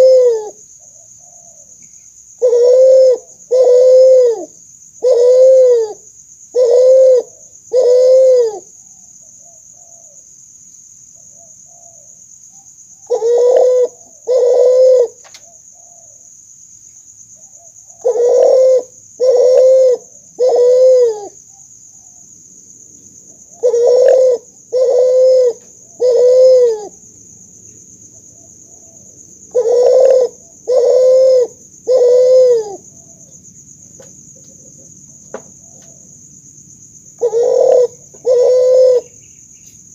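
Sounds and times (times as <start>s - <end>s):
dove cooing: 0.0s - 1.8s, 2.4s - 10.2s, 13.0s - 16.2s, 17.5s - 22.2s, 23.3s - 27.0s, 28.2s - 33.4s, 34.0s - 36.2s, 37.2s - 39.3s.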